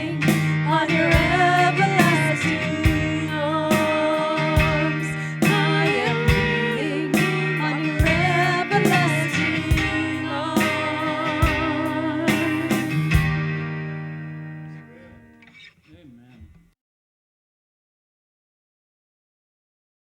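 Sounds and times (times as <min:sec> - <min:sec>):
person singing: 0:00.0 - 0:13.1
guitar: 0:00.0 - 0:16.8.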